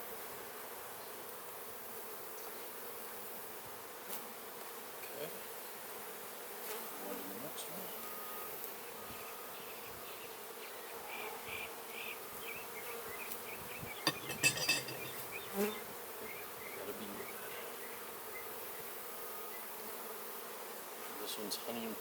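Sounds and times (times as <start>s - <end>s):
clicks and scraping: 14.1s - 15.3s.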